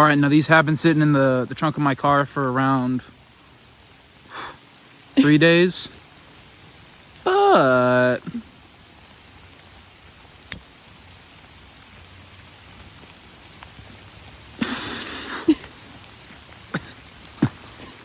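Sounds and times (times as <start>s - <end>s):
steady rain falling: 0.0s - 18.0s
burst of hissing noise: 14.5s - 17.9s.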